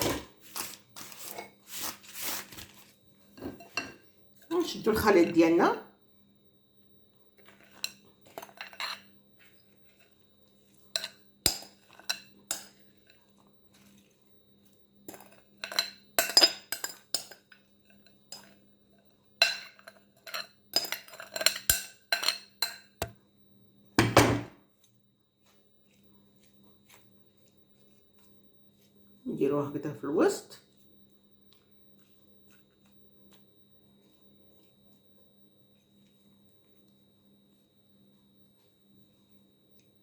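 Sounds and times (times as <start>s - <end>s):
faint steady hum: 0.0s - 40.0s
spoon clatter: 7.5s - 9.1s, 11.0s - 12.8s, 15.1s - 17.6s, 19.4s - 23.0s
spoon clinking against bowl: 11.0s - 12.9s, 15.1s - 17.6s, 19.4s - 23.1s.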